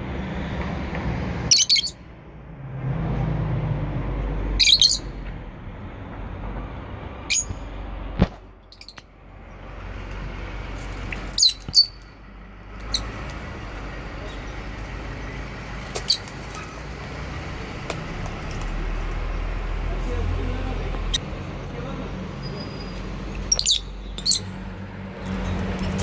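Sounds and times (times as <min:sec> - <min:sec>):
lovebirds chirping: 0:01.5 - 0:02.0, 0:04.6 - 0:05.2, 0:07.2 - 0:07.6, 0:08.6 - 0:10.0, 0:10.8 - 0:16.9, 0:22.3 - 0:24.6.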